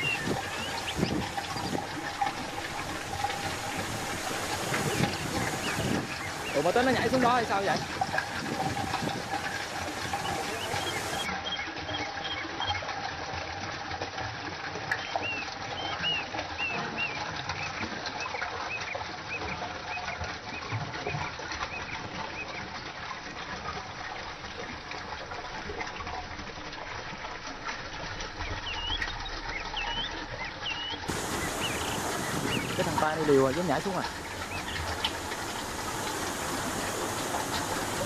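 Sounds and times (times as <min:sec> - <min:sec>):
small bird chirping: 0:00.0 - 0:01.8, 0:28.6 - 0:35.2
stream water flowing: 0:00.0 - 0:38.0.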